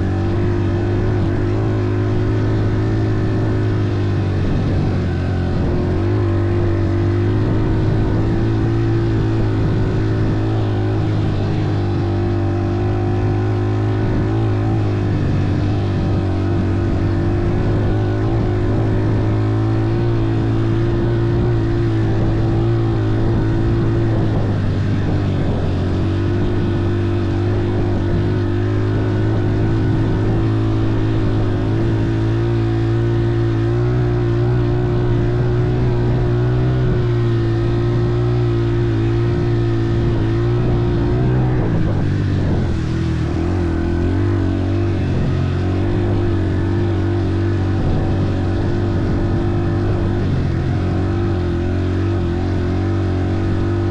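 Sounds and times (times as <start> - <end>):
vehicle engine running steadily: 0.0 - 53.9.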